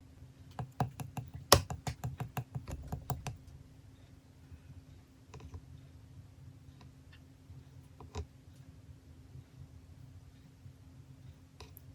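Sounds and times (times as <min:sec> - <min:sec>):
sharp tapping clicks: 0:00.6 - 0:03.4.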